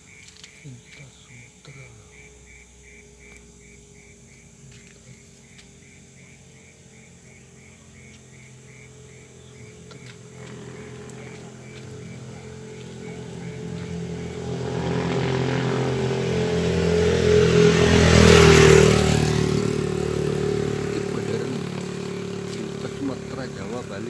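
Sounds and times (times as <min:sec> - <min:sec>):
faint insect chirps: 0:00.0 - 0:24.0
vehicle passing by: 0:00.2 - 0:24.0.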